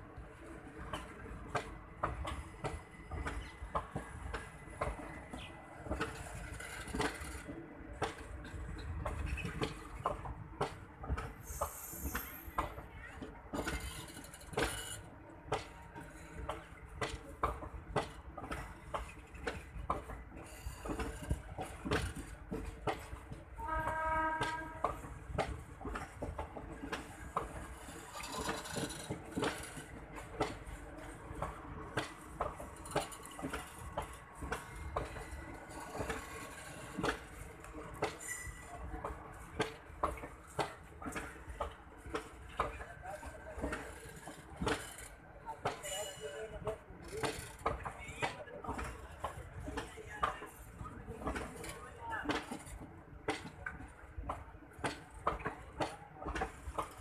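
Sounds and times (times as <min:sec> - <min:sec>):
low train rumble: 0:00.0 - 0:57.0
train wheels clicking over rail joints: 0:00.2 - 0:57.0
train horn: 0:23.6 - 0:25.1.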